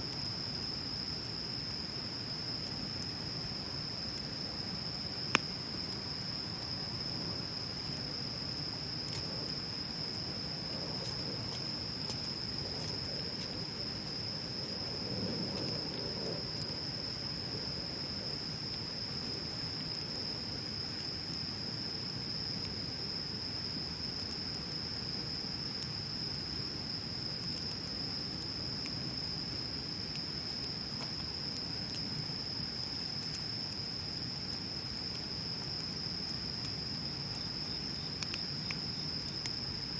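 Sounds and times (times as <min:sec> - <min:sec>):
bonfire burning and crackling: 0:00.0 - 0:39.9
insect trill: 0:00.0 - 0:39.9.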